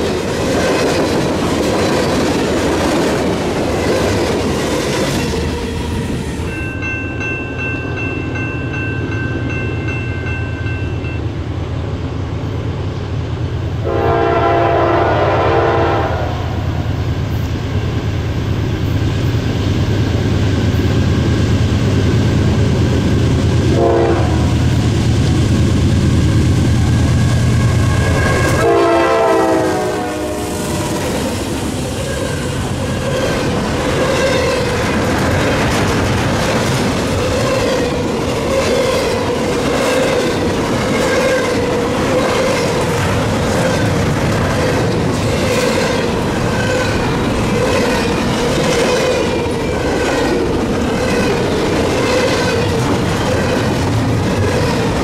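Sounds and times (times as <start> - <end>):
train horn blasts: 13.8 - 16.9, 23.7 - 24.6, 27.9 - 31.1
train wheels clacking over rail joints: 32.2 - 55.0.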